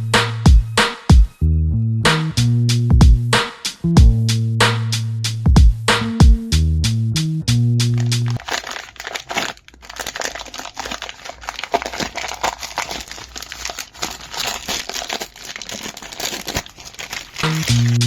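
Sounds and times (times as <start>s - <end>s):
plastic packaging crinkling: 8.0s - 18.0s.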